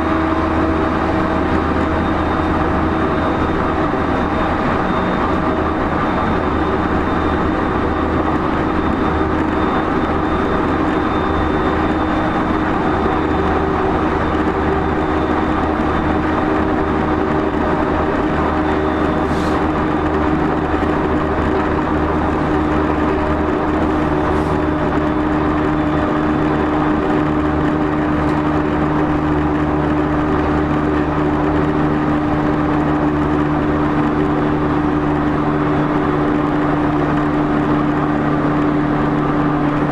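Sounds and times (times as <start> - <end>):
train motors humming: 0.0 - 39.9
wheel and rail rumble: 0.0 - 39.9.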